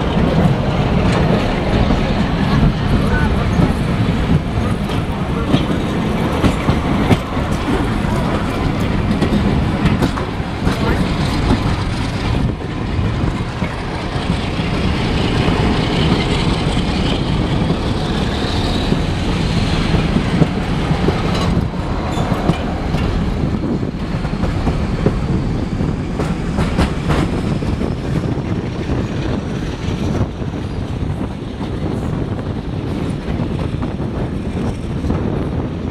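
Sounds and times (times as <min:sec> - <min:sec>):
train wheels rumbling on rails: 0:00.0 - 0:35.9.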